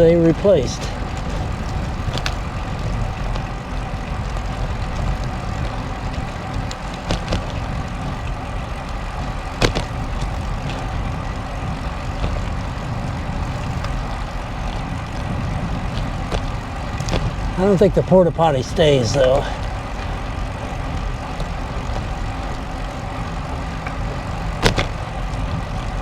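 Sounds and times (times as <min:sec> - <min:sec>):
wind and tyre rumble: 0:00.0 - 0:26.0.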